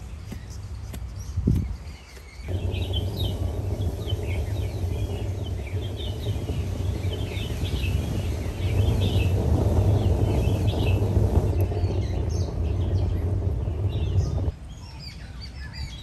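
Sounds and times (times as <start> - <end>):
small birds chirping: 0.0 - 16.0
steady low rumble: 2.4 - 14.6.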